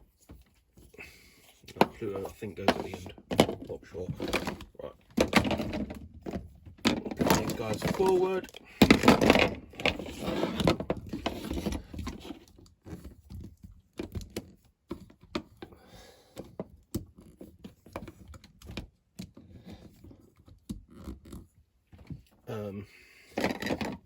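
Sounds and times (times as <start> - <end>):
plastic toys clicking and tapping: 1.7 - 15.7, 23.3 - 24.0.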